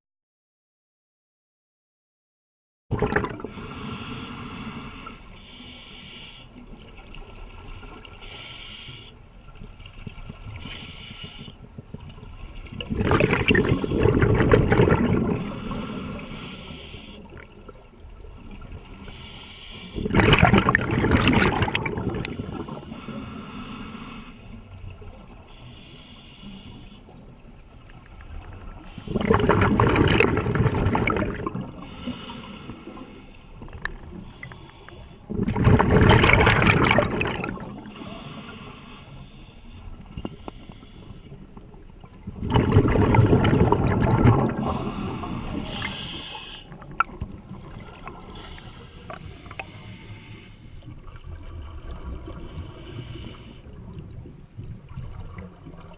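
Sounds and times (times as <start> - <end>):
bubbling exhaled air underwater: 2.9 - 3.8, 11.8 - 16.6, 20.0 - 23.0, 28.2 - 38.6, 41.6 - 50.2
scuba regulator hiss: 3.5 - 6.5, 8.2 - 9.2, 10.6 - 11.6, 15.4 - 17.3, 19.0 - 20.0, 25.5 - 27.1, 31.7 - 33.5, 44.6 - 46.7, 48.0 - 50.8.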